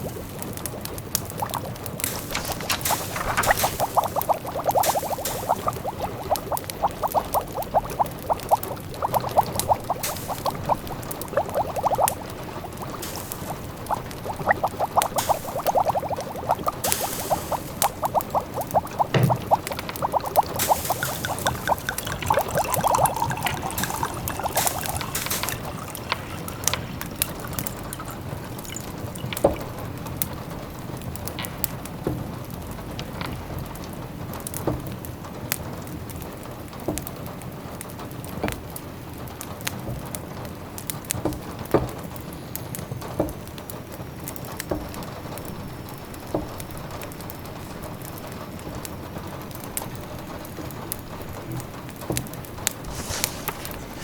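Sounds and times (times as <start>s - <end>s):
wood fire crackling: 0.0s - 28.5s, 52.5s - 54.0s
pot of food bubbling: 0.0s - 30.2s, 52.6s - 54.0s
rain pattering: 0.0s - 54.0s.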